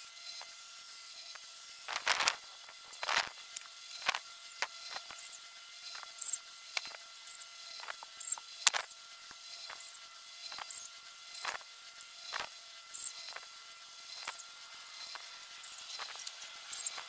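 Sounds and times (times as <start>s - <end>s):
faint steady hum: 0.0s - 17.0s
short high squeaks: 15.1s - 17.0s
clicks and knocks of hand work: 15.9s - 17.0s.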